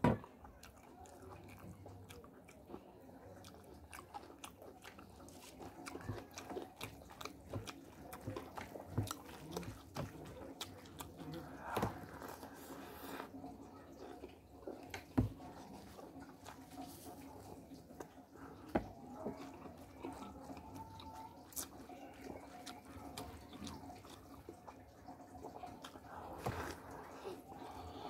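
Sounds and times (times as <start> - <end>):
wet chewing and lip smacks: 0.4 - 12.9, 14.2 - 27.7.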